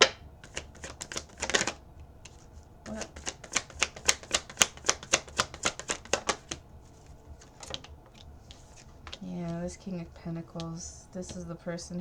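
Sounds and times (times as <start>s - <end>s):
cards being shuffled: 0.4s - 9.9s.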